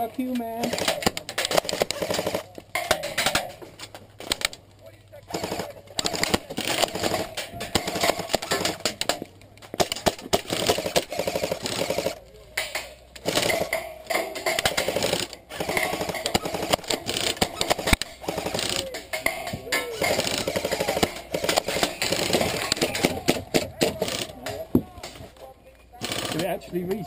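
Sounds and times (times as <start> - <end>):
airsoft guns full-auto bursts: 0.6 - 3.5, 5.3 - 9.2, 9.8 - 12.2, 13.2 - 19.0, 19.9 - 24.4, 26.0 - 26.7.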